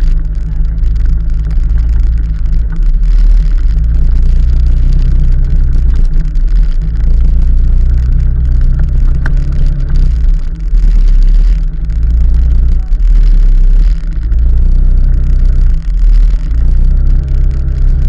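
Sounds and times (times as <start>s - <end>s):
moving vehicle rumble: 0.0s - 18.0s.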